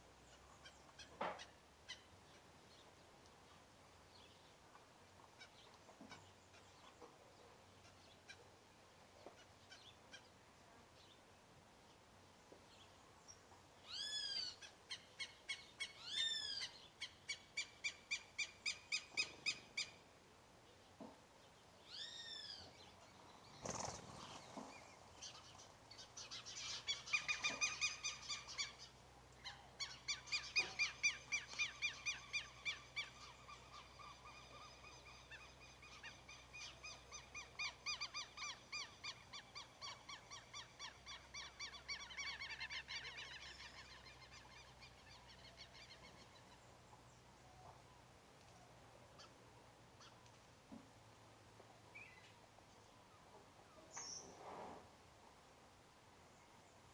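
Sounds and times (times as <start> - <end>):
birds calling: 21.8 - 48.0.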